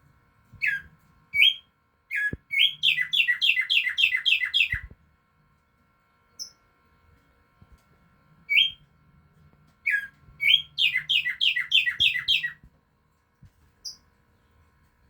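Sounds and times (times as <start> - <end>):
songbird singing: 0.6 - 5.0, 6.3 - 6.6, 8.5 - 8.9, 9.8 - 12.7, 13.8 - 14.6.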